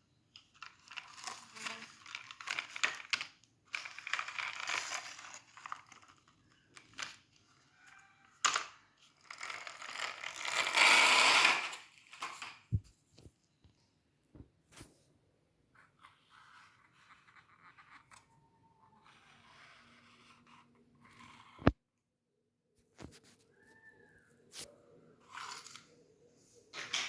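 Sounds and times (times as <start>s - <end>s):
objects rustling and clicking: 0.3s - 10.8s.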